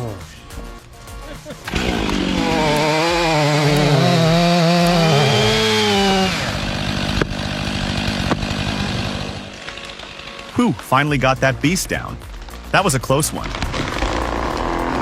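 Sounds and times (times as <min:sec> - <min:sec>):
chainsaw cutting: 0:01.4 - 0:10.9, 0:13.4 - 0:15.0
sharp knocks: 0:08.2 - 0:08.5.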